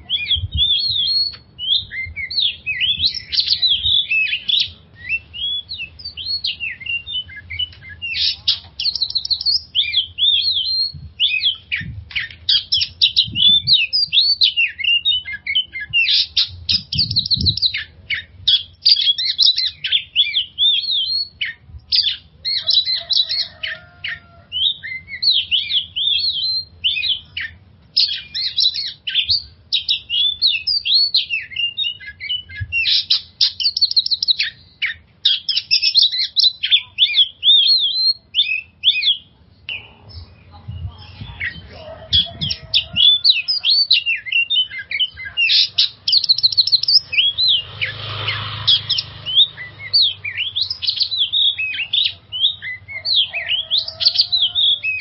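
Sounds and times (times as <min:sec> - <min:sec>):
songbird whistled phrases and trills: 0:00.0 - 0:47.7, 0:48.9 - 0:55.0
bird harsh rasping call: 0:17.7 - 0:39.2, 0:41.4 - 0:55.0.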